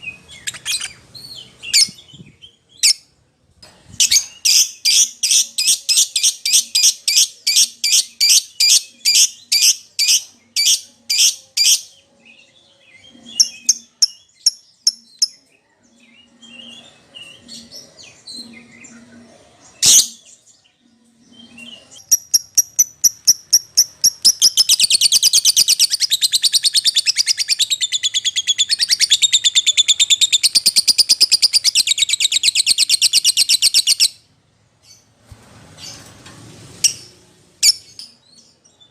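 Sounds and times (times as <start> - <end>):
lovebird chirping and chattering: 0.1 - 2.1, 4.0 - 11.9, 13.2 - 15.4, 21.6 - 34.2, 36.8 - 38.6.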